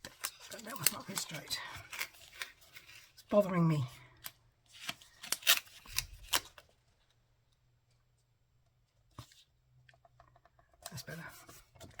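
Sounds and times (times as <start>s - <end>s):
crisp paper handling: 0.0s - 7.1s.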